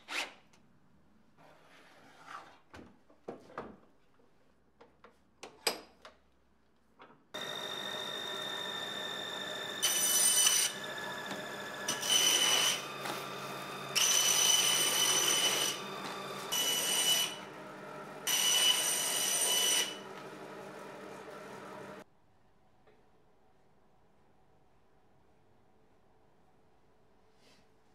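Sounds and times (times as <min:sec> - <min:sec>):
high ringing from shredder: 0:07.4 - 0:17.4
paper shredder motor running: 0:07.4 - 0:22.0.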